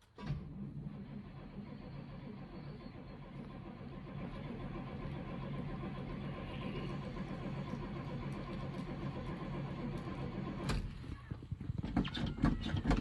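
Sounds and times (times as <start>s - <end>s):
car engine idling: 0.8s - 11.0s.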